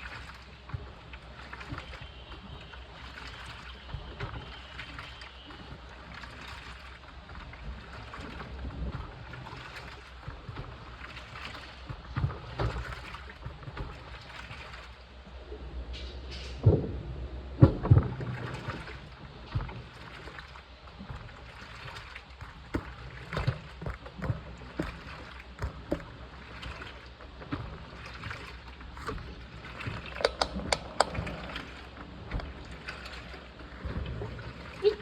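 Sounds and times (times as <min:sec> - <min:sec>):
washing machine motor hum: 0:00.0 - 0:15.8, 0:16.6 - 0:35.0
water sloshing in drum: 0:00.0 - 0:17.0, 0:17.6 - 0:35.0
washing machine knocks: 0:22.7 - 0:26.2.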